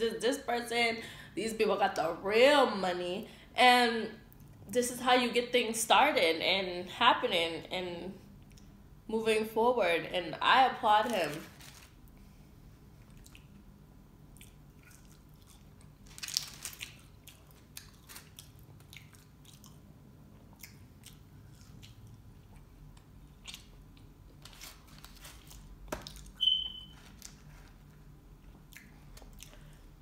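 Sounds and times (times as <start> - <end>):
biting and chewing crunchy food: 14.3 - 26.4.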